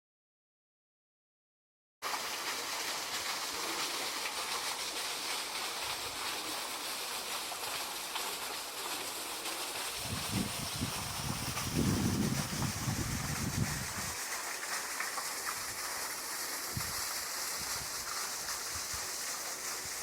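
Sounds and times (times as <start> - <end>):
stream water rushing: 2.0 - 20.0.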